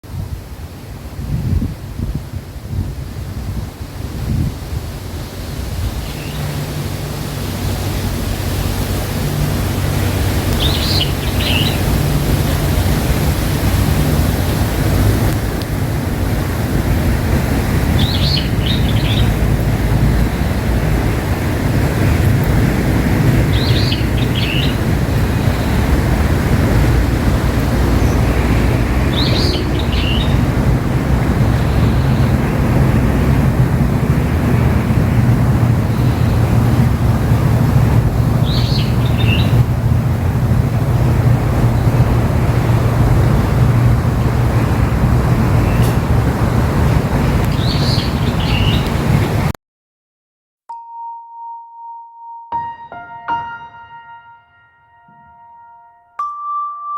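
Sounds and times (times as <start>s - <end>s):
wind rumble on microphone: 0.0s - 49.6s
bird chirping: 6.0s - 6.7s, 10.5s - 12.0s, 18.0s - 19.5s, 23.4s - 26.1s, 27.9s - 30.5s, 38.4s - 39.6s, 47.5s - 48.9s.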